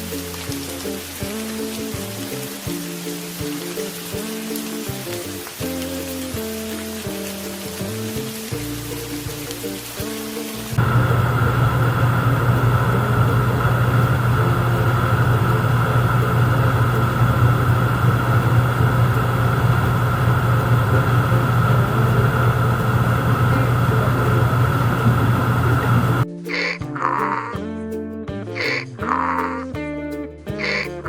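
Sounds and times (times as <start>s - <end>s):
steady motor drone: 10.7s - 26.2s.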